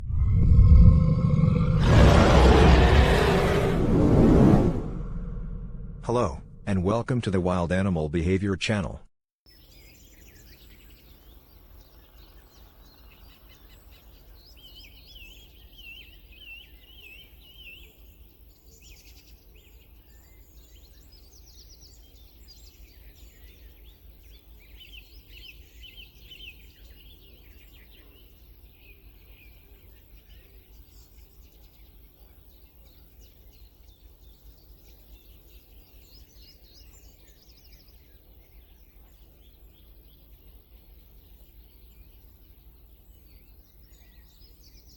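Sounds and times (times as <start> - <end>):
steady low rumble: 0.0 - 6.9
small birds singing: 9.5 - 44.9.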